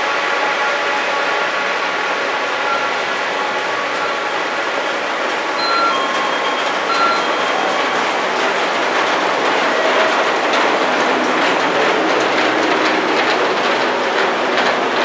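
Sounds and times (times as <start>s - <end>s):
train wheels clattering over joints: 2.0s - 15.0s
high wheel squeals: 2.6s - 8.2s.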